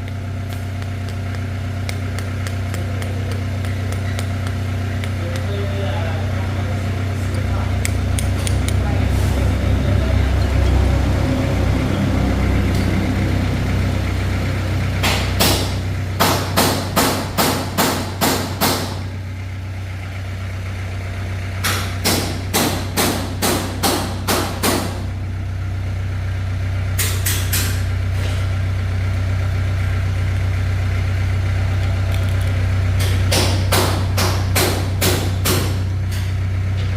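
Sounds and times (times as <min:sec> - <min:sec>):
engine idling: 0:00.0 - 0:36.9
hammer striking metal: 0:15.0 - 0:19.0, 0:21.6 - 0:25.0, 0:33.0 - 0:36.3.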